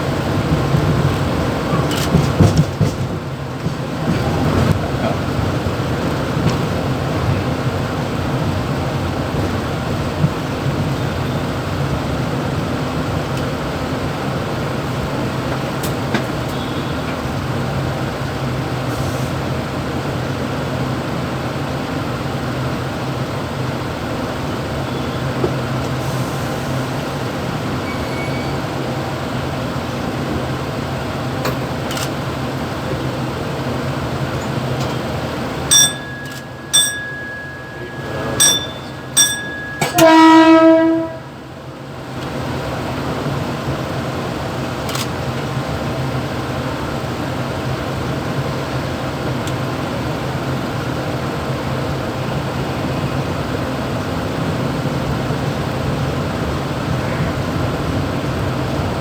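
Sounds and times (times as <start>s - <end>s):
train running with low hum: 0.0s - 59.0s
sharp high-pitched horn blasts: 37.6s - 41.3s.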